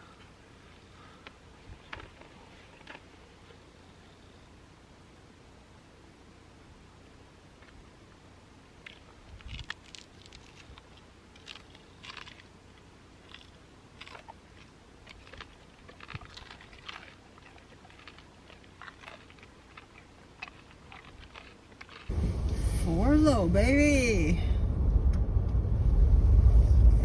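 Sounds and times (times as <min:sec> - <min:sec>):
chewing and biting food: 0:01.0 - 0:03.6, 0:08.8 - 0:22.4.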